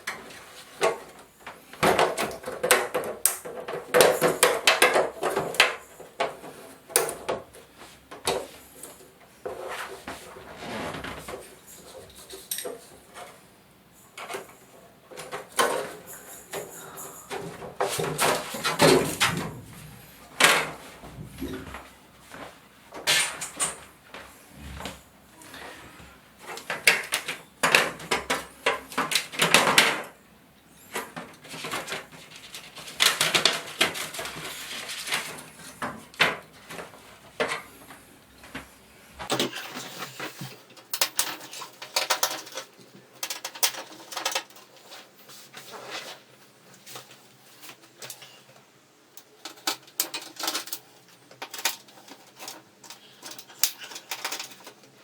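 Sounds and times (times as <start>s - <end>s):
plastic parts clicking and knocking: 0.0s - 9.7s, 14.2s - 21.9s, 26.4s - 30.2s, 30.9s - 37.6s, 39.2s - 45.1s, 47.7s - 55.0s
scraping and rustling: 0.0s - 30.2s, 30.8s - 55.0s.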